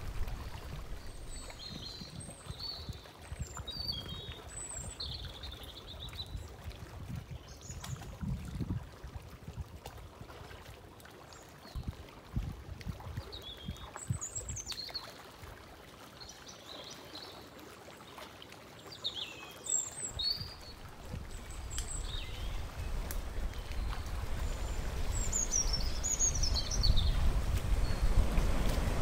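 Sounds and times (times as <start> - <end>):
low splashes: 0.0 - 2.8, 20.0 - 29.0
wading in shallow water: 0.0 - 29.0
high bird chirps: 20.1 - 28.1
low rumble: 20.9 - 29.0.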